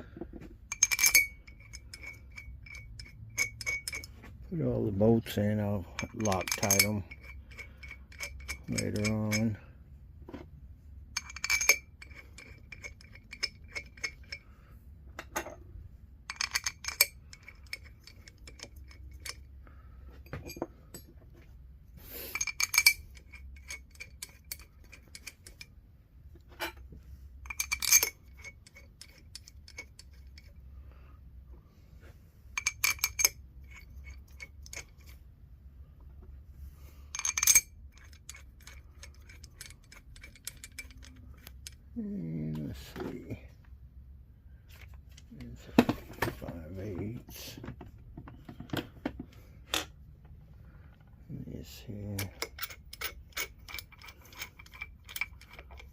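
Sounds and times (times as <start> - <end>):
metal bolts clinking: 0.7 - 4.4, 5.3 - 9.6, 11.1 - 14.5, 16.3 - 19.5, 22.3 - 25.7, 27.4 - 30.6, 32.6 - 35.2, 37.1 - 41.8, 51.9 - 55.9
small metallic ticks and rattles: 0.7 - 4.4, 5.3 - 9.7, 11.2 - 14.5, 16.3 - 19.5, 22.3 - 25.7, 27.4 - 30.6, 32.6 - 35.2, 37.1 - 41.8, 51.7 - 55.9.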